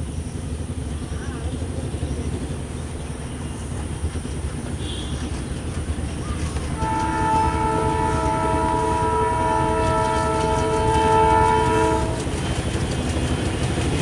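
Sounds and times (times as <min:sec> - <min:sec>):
diesel locomotive rumbling: 0:00.0 - 0:14.0
locomotive horn chord: 0:06.6 - 0:12.6.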